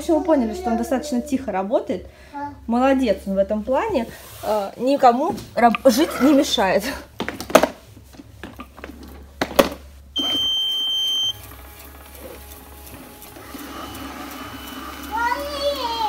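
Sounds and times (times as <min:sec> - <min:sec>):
robot vacuum high beep: 0:10.2 - 0:11.4, 0:13.7 - 0:16.0
robot vacuum whirring: 0:10.2 - 0:16.0.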